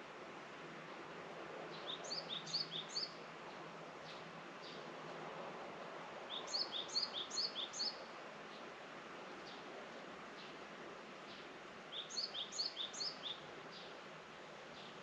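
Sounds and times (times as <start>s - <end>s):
songbird singing: 1.7s - 3.2s, 6.3s - 8.6s, 11.3s - 14.0s.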